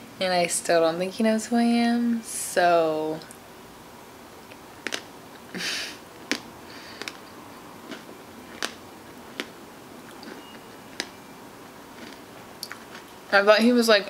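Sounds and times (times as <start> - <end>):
breathy hiss: 5.5 - 6.0, 6.6 - 7.2.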